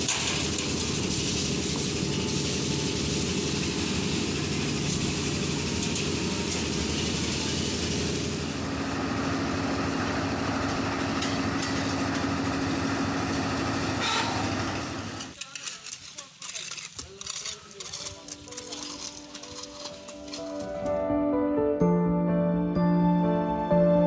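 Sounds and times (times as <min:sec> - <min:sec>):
engine running: 0:00.0 - 0:15.4
steady hum: 0:08.1 - 0:15.4.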